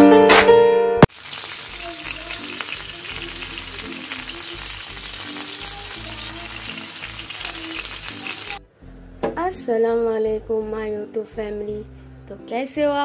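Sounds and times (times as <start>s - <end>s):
patties sizzling in oil: 1.0s - 8.6s
soft background music: 2.4s - 13.0s.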